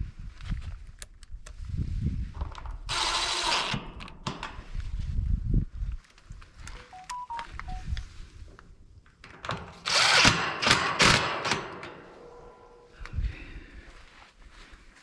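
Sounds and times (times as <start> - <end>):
handheld power tool running: 2.9 - 3.9, 9.8 - 11.6
short beeps: 6.8 - 8.0.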